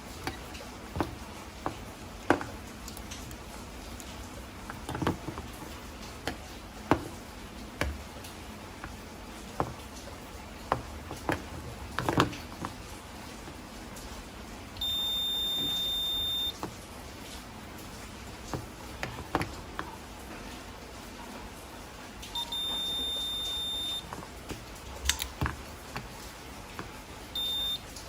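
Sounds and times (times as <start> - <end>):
high electronic beep: 14.8 - 16.5, 22.4 - 24.0, 27.4 - 27.8.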